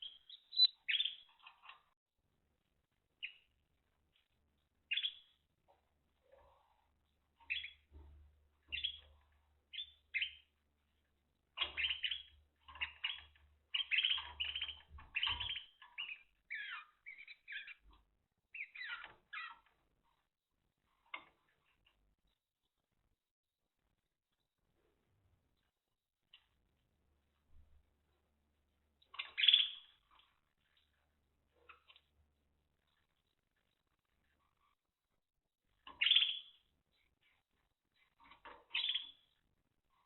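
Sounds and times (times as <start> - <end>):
canary singing: 0.0 - 1.8, 3.2 - 3.6, 4.9 - 5.4, 7.4 - 8.0, 8.6 - 10.6, 11.5 - 19.8, 29.0 - 30.8, 35.8 - 37.4, 38.0 - 39.4.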